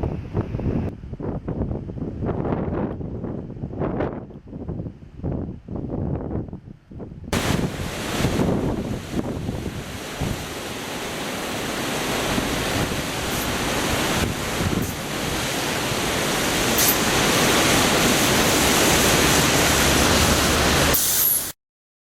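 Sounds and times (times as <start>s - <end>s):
floodwater rushing roar: 7.4s - 21.5s.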